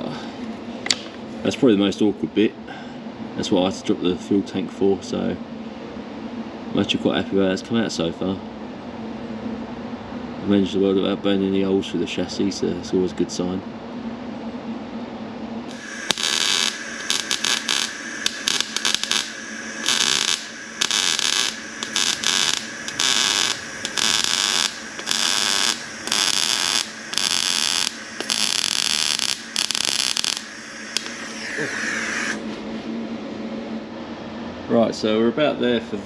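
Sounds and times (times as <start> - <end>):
welding arc crackling: 15.7 - 32.4.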